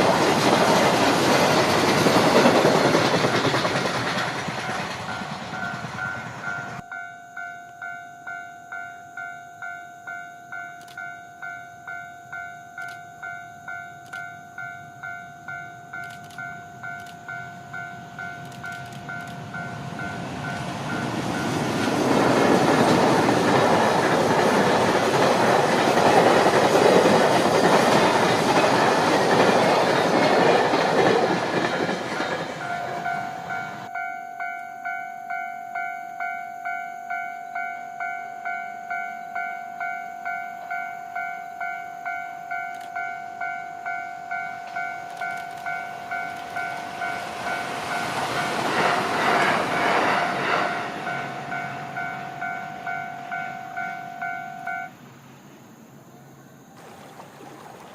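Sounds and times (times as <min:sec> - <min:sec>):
passing train wheel clatter: 0:00.0 - 0:09.2, 0:10.2 - 0:55.4
level crossing alarm pulses: 0:49.3 - 0:55.0.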